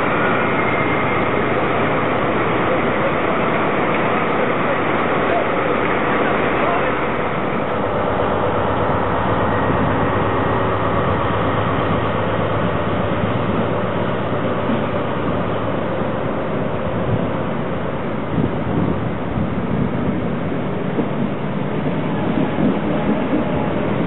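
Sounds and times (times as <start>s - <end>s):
train running noise: 0.0s - 24.0s.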